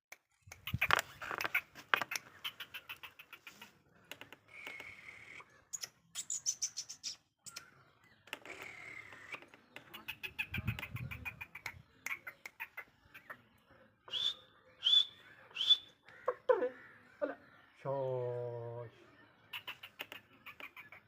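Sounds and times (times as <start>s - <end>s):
bird calling harsh clicking notes: 0.1s - 13.4s, 19.5s - 21.0s.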